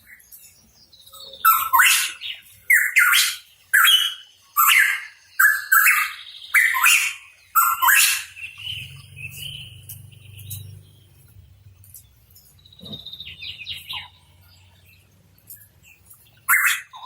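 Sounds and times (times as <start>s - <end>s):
bird calling: 1.1s - 11.4s, 12.7s - 14.6s, 15.6s - 17.0s.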